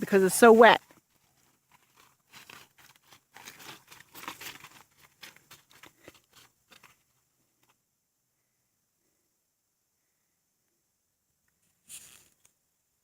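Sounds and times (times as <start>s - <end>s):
crunching and tearing in wet grass: 0.5s - 7.0s.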